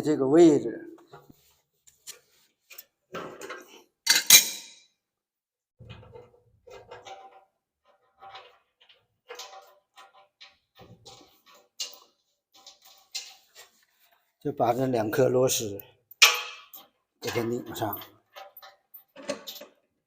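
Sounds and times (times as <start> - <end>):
sharp metal clanks: 4.1 - 4.8.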